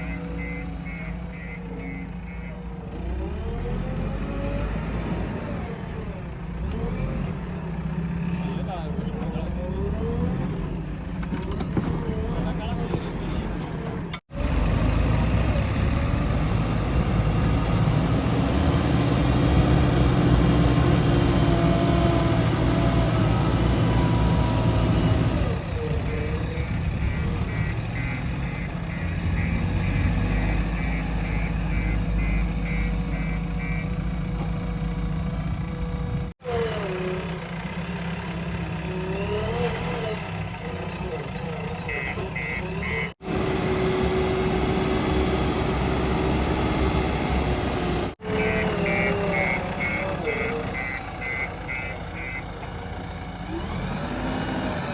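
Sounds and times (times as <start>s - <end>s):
reversing alarm beeping: 0.0s - 2.6s, 48.3s - 52.4s
heavy diesel engines rumbling: 0.0s - 54.9s.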